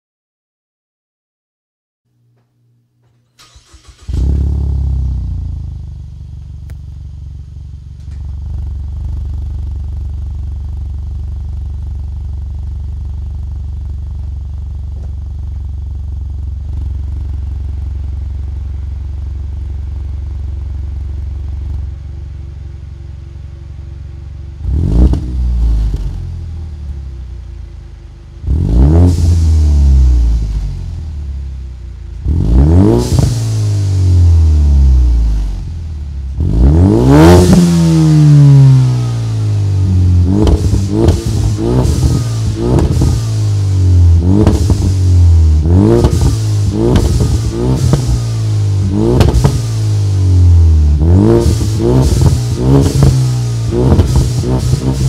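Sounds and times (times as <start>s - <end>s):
car engine idling and revving: 3.4s - 55.0s.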